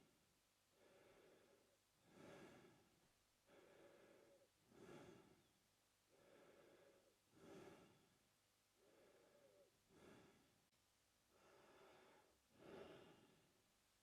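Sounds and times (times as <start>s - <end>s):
man breathing through mouth: 3.5s - 5.5s, 6.1s - 8.1s.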